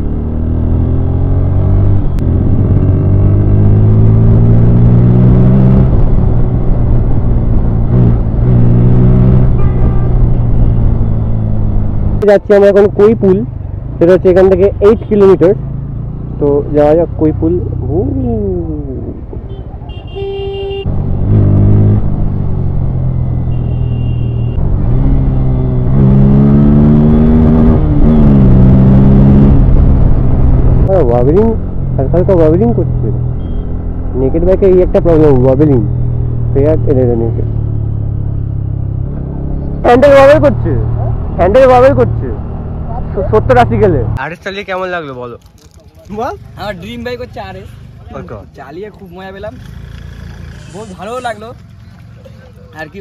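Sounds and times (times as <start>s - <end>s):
motorcycle engine accelerating: 0.0s - 12.3s, 20.9s - 23.9s, 24.6s - 44.2s, 49.4s - 52.5s.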